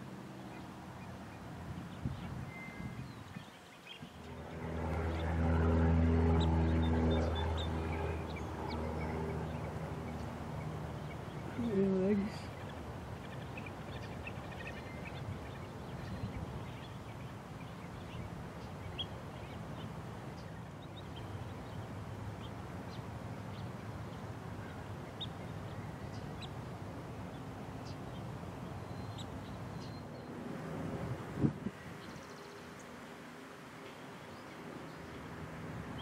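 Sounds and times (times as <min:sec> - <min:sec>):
low rumble: 0:04.1 - 0:11.0
birds chirping and calling: 0:06.3 - 0:26.7.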